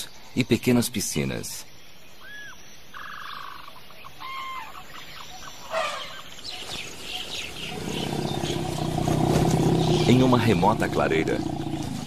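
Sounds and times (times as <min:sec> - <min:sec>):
birds whistling and chirping: 0:02.1 - 0:12.0.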